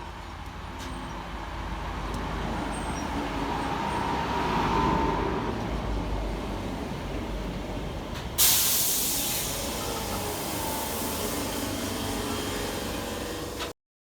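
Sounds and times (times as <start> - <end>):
train air brakes hissing: 8.4 - 13.7.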